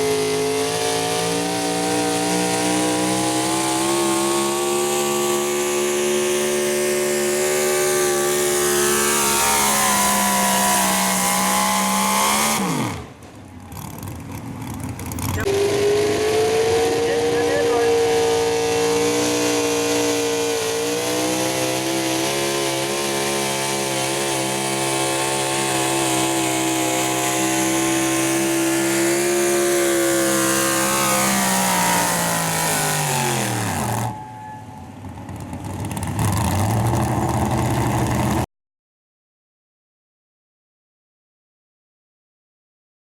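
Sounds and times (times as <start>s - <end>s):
truck engine at high revs: 0.0s - 38.5s
lower engine note: 15.0s - 38.5s.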